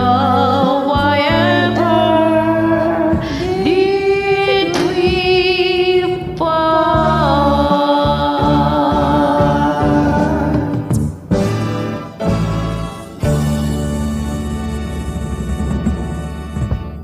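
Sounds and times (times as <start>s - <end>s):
woman singing with vibrato: 0.0s - 11.0s
karaoke backing track: 0.0s - 17.0s.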